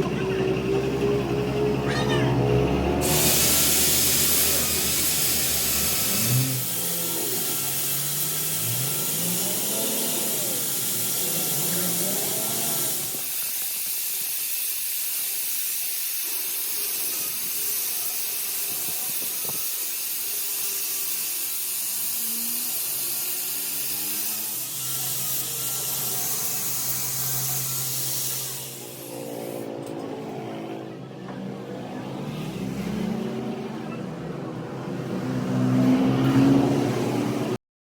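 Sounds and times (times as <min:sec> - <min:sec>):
motor running: 0:02.9 - 0:13.4, 0:18.7 - 0:29.7
loud air hiss: 0:03.0 - 0:29.7.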